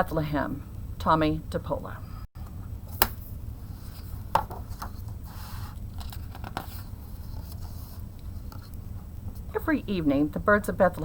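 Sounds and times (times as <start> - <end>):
paper rustling: 2.9 - 9.5.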